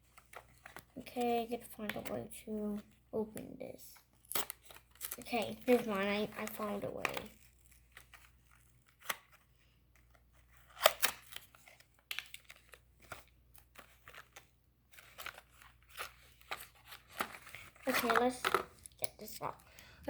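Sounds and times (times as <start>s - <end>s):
toy packaging crinkling and tearing: 0.0s - 19.9s
packaging snap: 10.7s - 11.5s, 15.0s - 18.9s.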